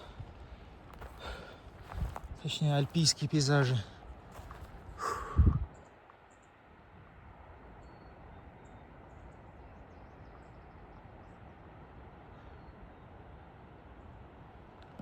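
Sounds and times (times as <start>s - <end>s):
outdoor background noise: 0.0s - 15.0s
faint high bird chirps: 7.8s - 11.5s.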